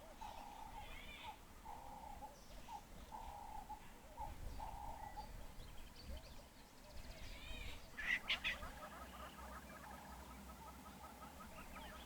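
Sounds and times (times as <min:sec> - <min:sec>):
wild birds calling: 0:00.0 - 0:05.6, 0:07.1 - 0:12.0.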